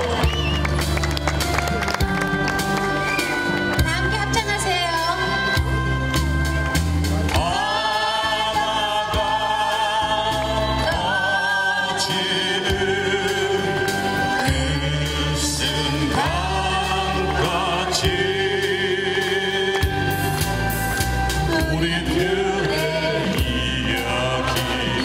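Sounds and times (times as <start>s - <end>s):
steady bass accompaniment: 0.0s - 25.0s
group of voices singing: 7.2s - 25.0s.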